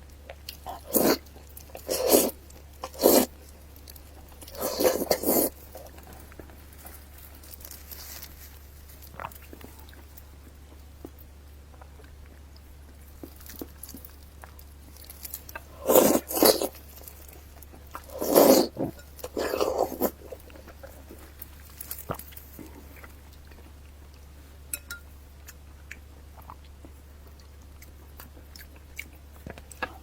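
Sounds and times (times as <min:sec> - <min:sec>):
person chewing and biting: 0:00.2 - 0:10.2, 0:13.1 - 0:24.3.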